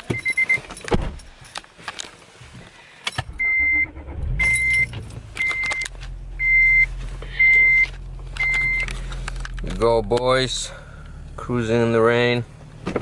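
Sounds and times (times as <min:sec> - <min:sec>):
car warning chime beeping: 0:00.0 - 0:00.7, 0:03.2 - 0:08.9
car engine starting and idling: 0:03.0 - 0:13.0.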